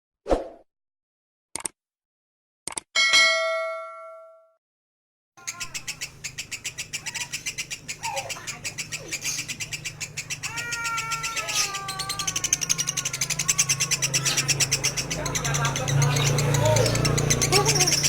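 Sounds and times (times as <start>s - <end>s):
bird chattering call: 5.4s - 18.0s
falling wavering bird call: 9.0s - 14.8s.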